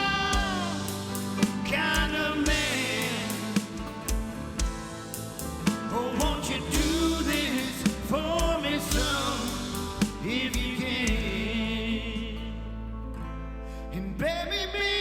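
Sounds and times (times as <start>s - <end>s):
drum kit steady beat: 0.0s - 11.3s
slow rock band playing: 0.0s - 11.6s.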